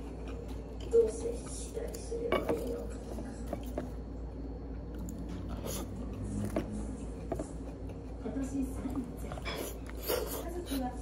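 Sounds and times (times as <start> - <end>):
person chewing crunchy food: 0.0 - 0.9.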